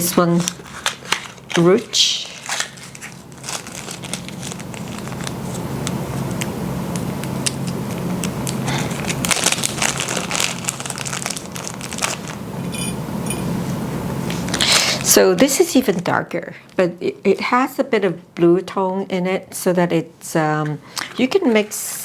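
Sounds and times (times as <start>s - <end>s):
rustling crinkling handling noise: 0.0s - 15.0s
steady low hum: 0.0s - 22.0s.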